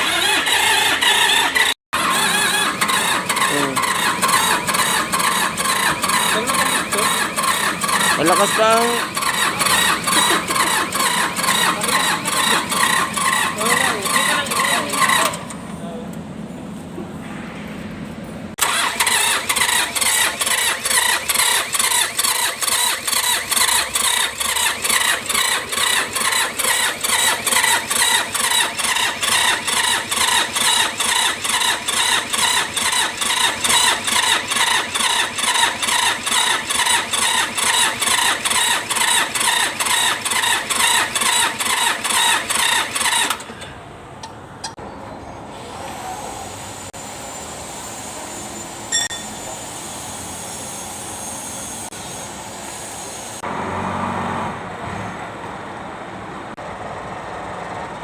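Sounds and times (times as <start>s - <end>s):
diesel engine cranking: 0.0s - 17.3s, 18.1s - 47.0s
whining squeal: 44.7s - 53.4s.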